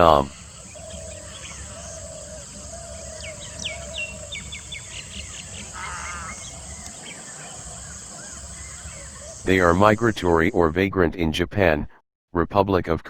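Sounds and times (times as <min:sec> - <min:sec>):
high falling bird notes: 0:00.0 - 0:09.8
small birds chirping: 0:00.0 - 0:10.4
faint outdoor noise: 0:00.0 - 0:11.8.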